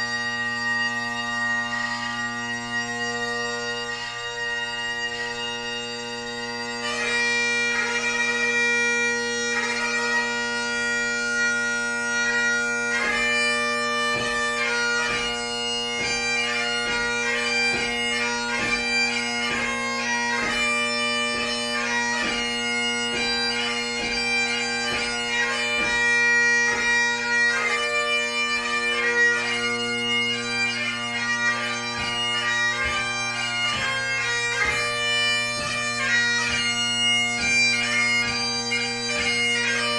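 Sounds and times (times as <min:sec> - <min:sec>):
bagpipe playing: 0:00.0 - 0:39.9.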